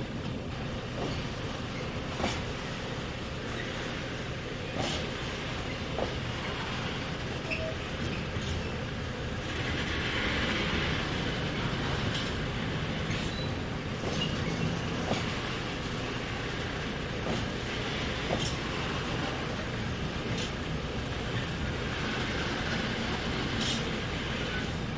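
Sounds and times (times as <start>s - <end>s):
diesel train moving slowly: 0.0s - 24.9s
wheels clicking on track: 5.7s - 24.9s.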